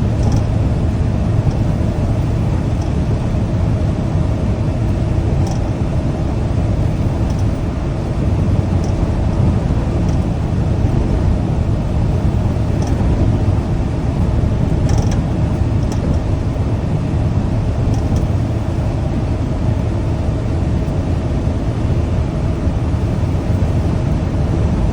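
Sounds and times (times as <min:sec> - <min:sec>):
truck engine and road rumble: 0:00.0 - 0:24.9
faint ticks: 0:07.2 - 0:07.6, 0:14.9 - 0:15.2.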